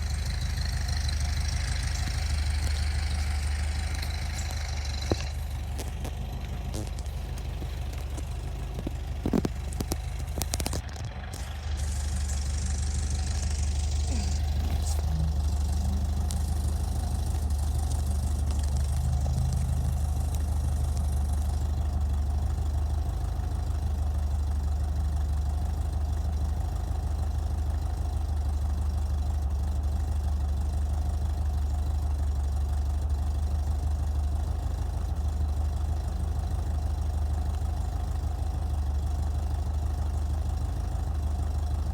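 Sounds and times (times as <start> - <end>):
car engine idling: 0.0 - 41.9
sharp clicks: 0.2 - 21.8.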